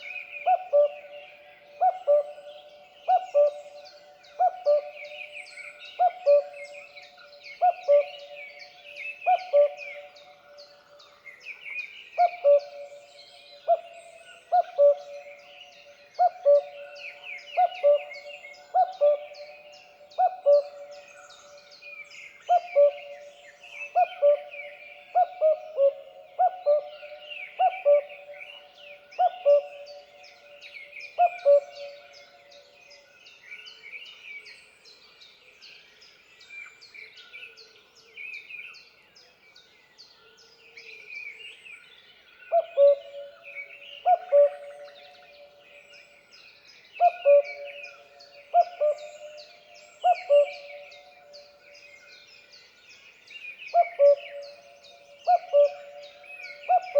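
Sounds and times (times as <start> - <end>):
cuckoo calling: 3.1 - 3.8, 4.4 - 5.2, 6.0 - 6.6, 12.2 - 12.9, 16.2 - 16.9, 17.6 - 20.9, 25.2 - 28.3, 29.2 - 30.0, 31.2 - 32.0, 42.5 - 43.4, 44.0 - 45.5, 47.0 - 51.4, 53.8 - 56.9
small birds chirping: 41.9 - 56.9.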